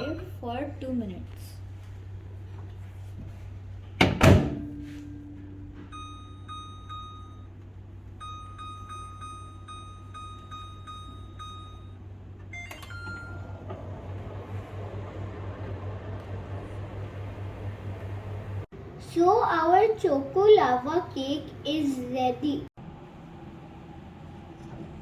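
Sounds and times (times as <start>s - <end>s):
microwave fan hum: 0.0s - 25.0s
microwave door knocks: 4.0s - 4.7s
microwave start click and tone: 4.5s - 16.5s
keypad beeps: 5.9s - 7.5s, 8.2s - 13.5s.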